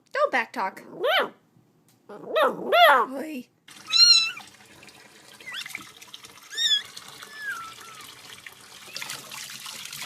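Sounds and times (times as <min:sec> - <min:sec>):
water trickling from a tap: 0:03.7 - 0:10.0
high-pitched squeaky calls: 0:03.9 - 0:04.4, 0:06.5 - 0:08.0.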